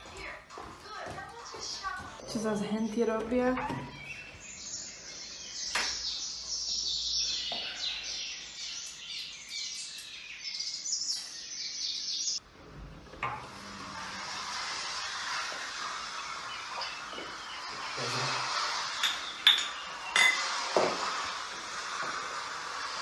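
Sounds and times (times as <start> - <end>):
birds chirping and twittering: 0.2 - 12.4, 15.7 - 20.4.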